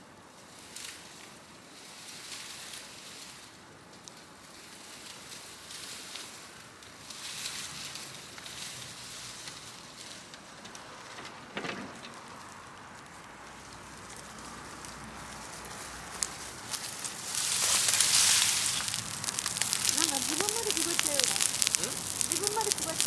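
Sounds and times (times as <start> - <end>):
small pops of fire: 10.3 - 23.0
bonfire crackling: 12.0 - 23.0
loud wood snap: 16.1 - 23.0.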